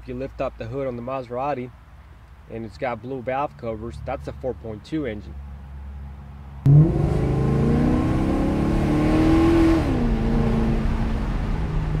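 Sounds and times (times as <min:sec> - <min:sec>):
car engine accelerating: 0:06.6 - 0:12.0.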